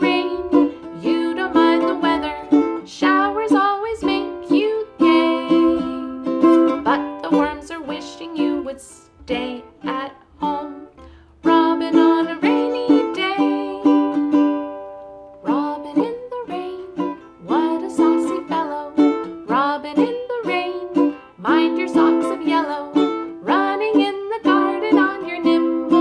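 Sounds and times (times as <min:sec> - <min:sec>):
woman singing a children's song: 0:00.0 - 0:14.3, 0:15.4 - 0:26.0
plucked string instrument: 0:00.0 - 0:26.0.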